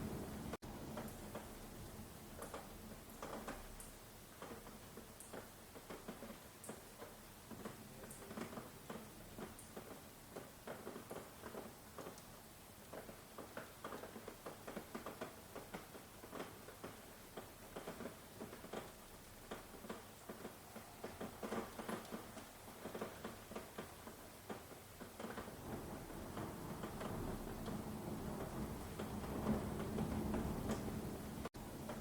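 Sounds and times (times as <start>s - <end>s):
distant thunder rumble: 0.0s - 0.6s, 25.4s - 32.0s
raindrops pattering on a surface: 0.0s - 32.0s.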